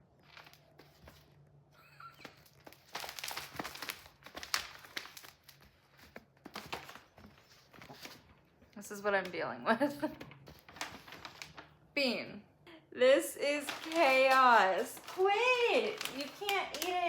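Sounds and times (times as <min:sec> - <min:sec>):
wrapping paper crinkling: 0:00.0 - 0:01.5, 0:02.2 - 0:08.3, 0:10.3 - 0:11.8, 0:13.5 - 0:17.0.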